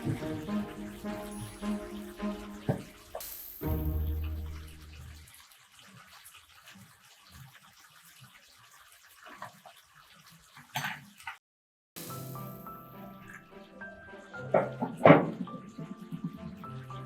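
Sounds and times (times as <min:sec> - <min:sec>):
low music note: 0:00.0 - 0:05.2
water splashing: 0:00.0 - 0:10.7
water running in a sink: 0:00.0 - 0:11.4, 0:12.0 - 0:17.0.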